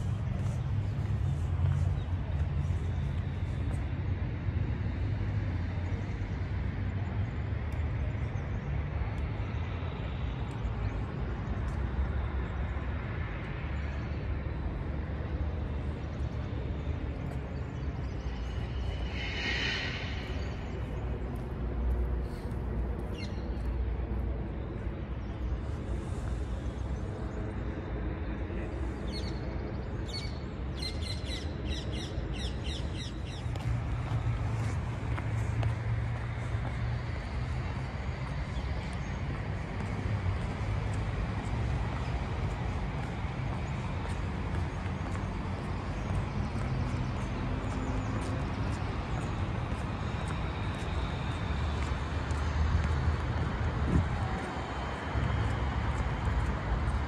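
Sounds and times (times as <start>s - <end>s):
low outdoor rumble: 0.0s - 30.6s.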